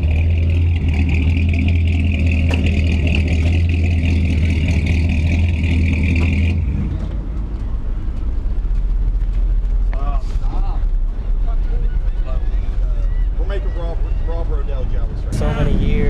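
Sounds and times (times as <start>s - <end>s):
engine low hum: 0.0s - 16.0s
high whine: 15.2s - 16.0s.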